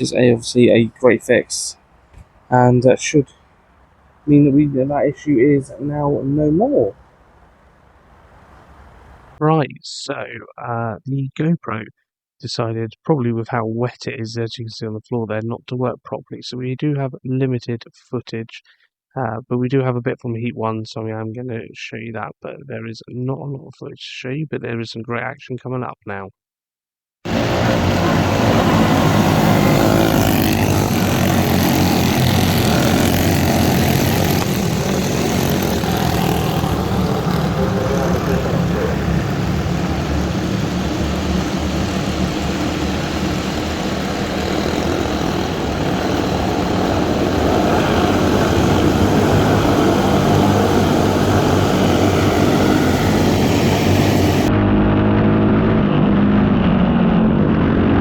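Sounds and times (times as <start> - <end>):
racing kart engines: 0.0 - 9.4, 27.3 - 56.5.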